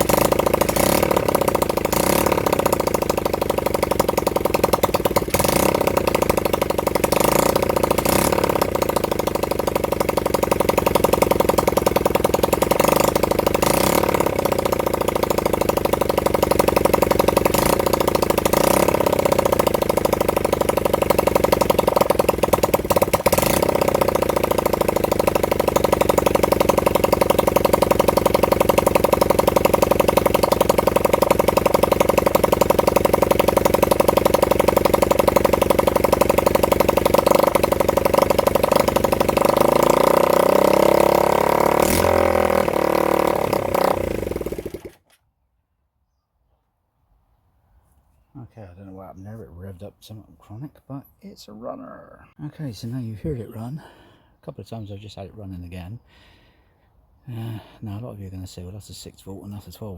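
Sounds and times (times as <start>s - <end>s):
motorcycle engine idling rough: 0.0s - 45.2s.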